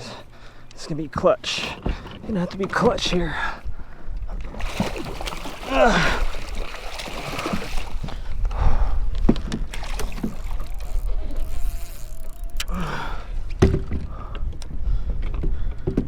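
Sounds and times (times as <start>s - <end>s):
wind rumbling on microphone: 6.2s - 16.0s
knocks against a kayak: 13.6s - 14.1s.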